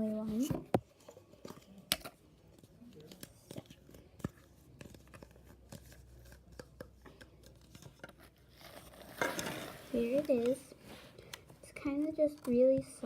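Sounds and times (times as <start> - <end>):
handling clicks and crinkles: 0.9 - 13.0.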